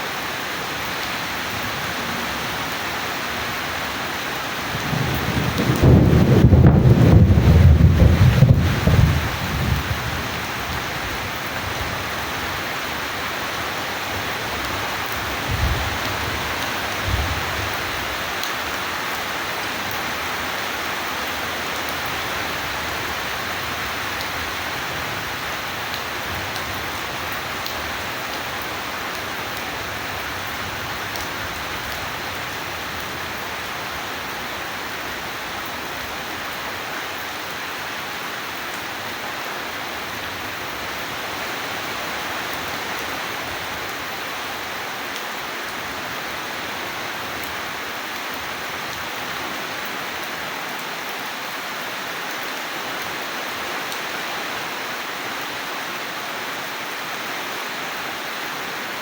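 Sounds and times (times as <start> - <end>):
heavy rain pouring: 0.0 - 59.0
low thunder rumbles: 4.6 - 11.8.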